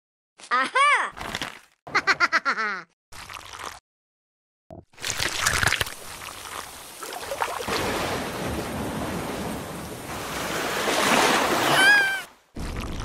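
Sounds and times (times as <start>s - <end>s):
rain falling: 6.0s - 11.8s.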